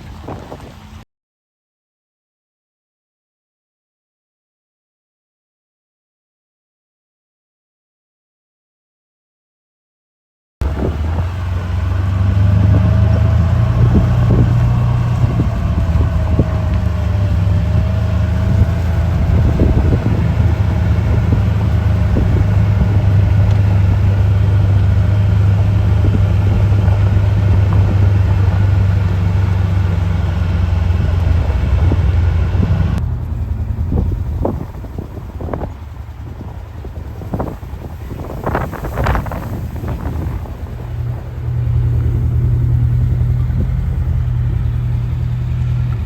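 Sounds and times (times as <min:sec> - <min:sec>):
car engine and road rumble: 0:00.0 - 0:01.0, 0:10.6 - 0:46.0.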